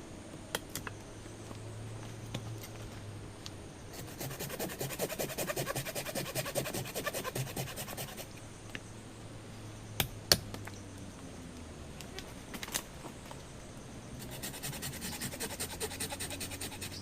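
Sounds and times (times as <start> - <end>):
rapid scratching strokes: 3.9 - 8.3, 14.2 - 17.0.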